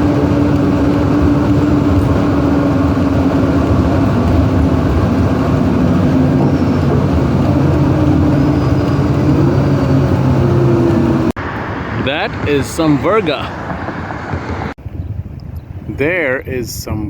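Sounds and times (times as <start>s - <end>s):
bus engine and road drone: 0.0s - 15.9s.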